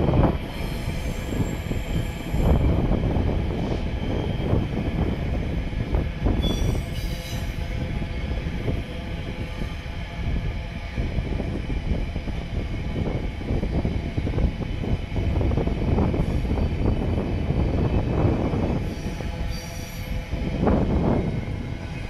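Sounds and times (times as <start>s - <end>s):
freight train rumbling: 0.0s - 22.0s
high wheel squeal: 6.4s - 7.6s.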